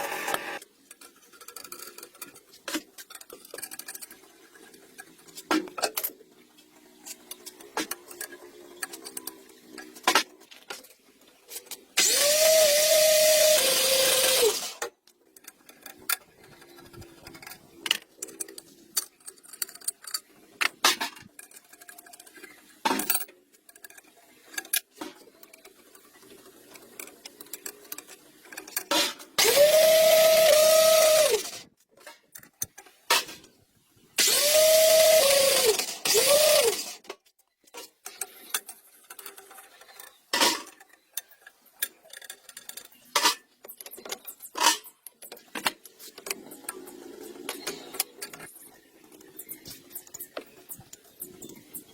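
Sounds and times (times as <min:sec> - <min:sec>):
tools clicking and clattering: 0:00.6 - 0:06.4, 0:07.0 - 0:33.5, 0:34.2 - 0:51.9
small motor whining: 0:12.0 - 0:14.8, 0:29.4 - 0:31.6, 0:34.2 - 0:37.0.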